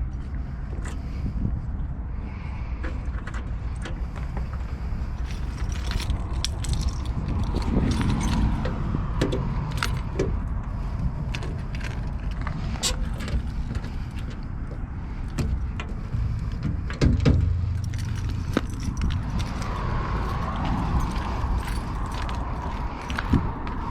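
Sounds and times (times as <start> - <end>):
bus diesel engine rumbling: 0.0 - 23.9
metallic clicks and clinks: 5.2 - 10.4, 17.6 - 23.4.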